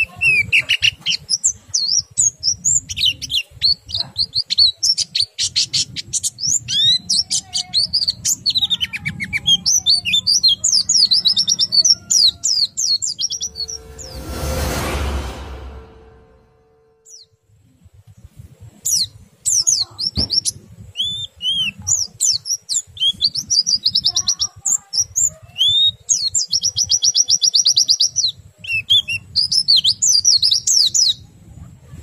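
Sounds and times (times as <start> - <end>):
loud rushing noise: 13.2 - 17.1.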